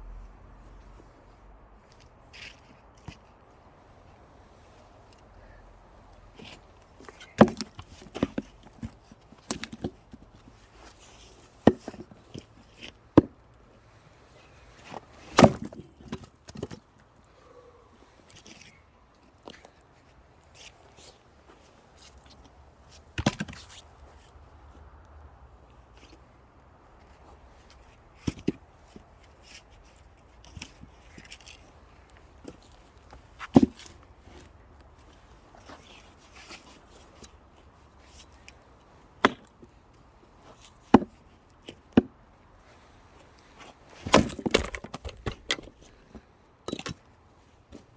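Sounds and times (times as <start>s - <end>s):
knocks and cracks of wood: 6.4s - 10.1s, 11.6s - 12.4s, 14.9s - 16.8s, 23.2s - 23.8s, 32.4s - 34.0s, 43.4s - 47.0s
axe chopping wood: 7.4s - 10.0s, 11.6s - 12.0s, 15.3s - 16.8s, 44.0s - 45.9s
wood clattering: 44.0s - 45.9s.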